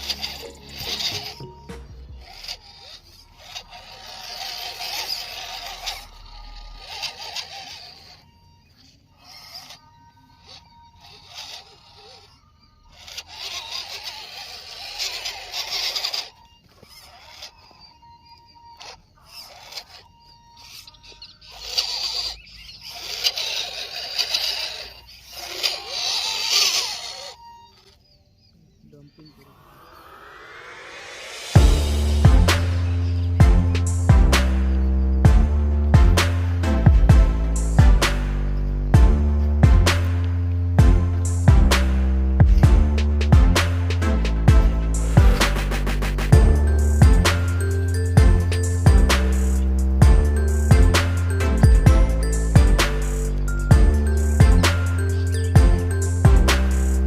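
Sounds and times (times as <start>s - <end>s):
rough scraping hiss: 0.0s - 18.0s, 43.2s - 57.0s
small electric motor whining: 0.0s - 57.0s.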